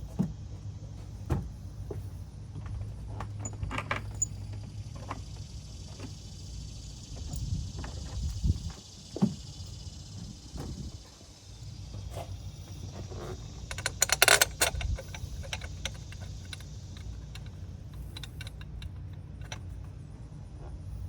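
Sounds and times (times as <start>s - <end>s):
metal tools clinking and rattling: 13.7s - 19.8s.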